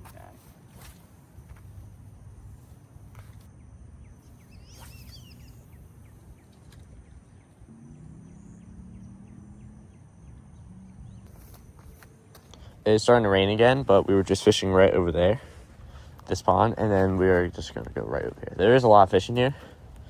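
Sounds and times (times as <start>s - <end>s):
low outdoor rumble: 0.0s - 20.0s
bird chirping: 3.2s - 14.1s.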